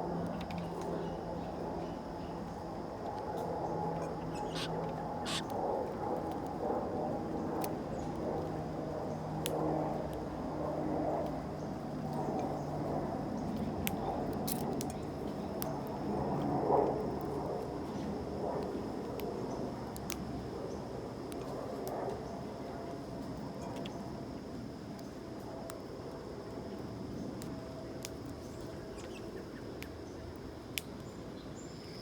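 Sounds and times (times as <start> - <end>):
steady low hum: 0.0 - 32.0
birds chirping: 0.3 - 5.6.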